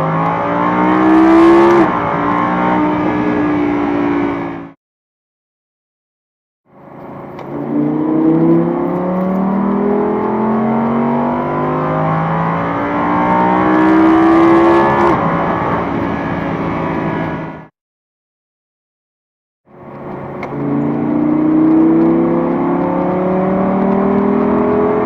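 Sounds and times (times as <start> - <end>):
car engine accelerating hard: 0.0 - 4.8, 7.2 - 17.6, 20.1 - 25.0.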